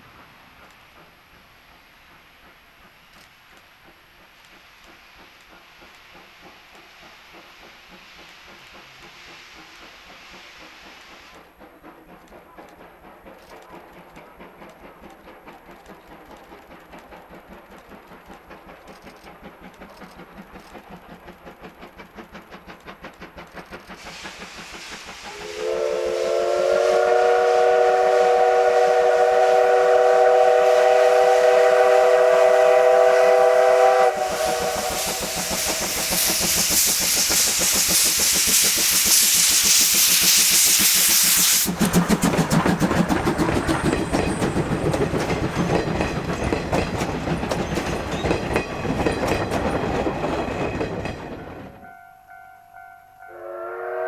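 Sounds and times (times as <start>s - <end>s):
loud steam hissing: 0.0s - 16.3s, 21.2s - 50.6s
steam locomotive chugging: 0.0s - 54.0s.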